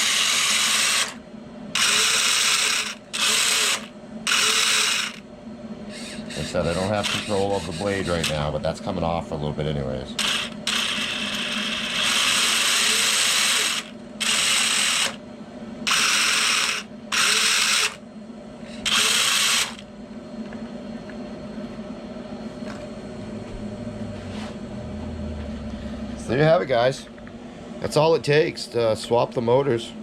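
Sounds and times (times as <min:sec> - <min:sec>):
motors whirring with gear rattle: 0:00.0 - 0:01.2, 0:01.8 - 0:05.2, 0:05.9 - 0:08.5, 0:10.2 - 0:15.2, 0:15.8 - 0:18.0, 0:18.7 - 0:19.8
faint steady hum: 0:00.0 - 0:30.0.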